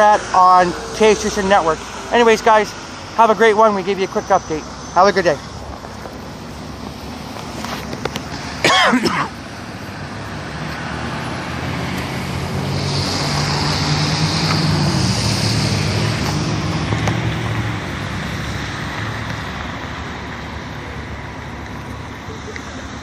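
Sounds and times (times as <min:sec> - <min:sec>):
steady traffic noise: 0:00.0 - 0:23.0
vehicle driving past: 0:09.6 - 0:21.3.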